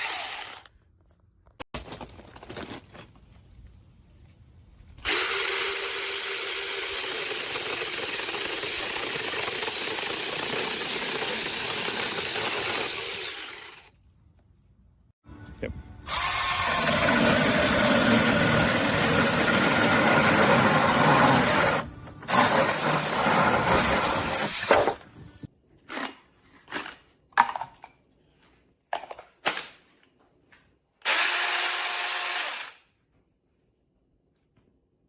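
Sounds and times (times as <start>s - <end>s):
mini chainsaw running: 0.0s - 0.7s, 5.0s - 13.9s, 16.1s - 23.9s.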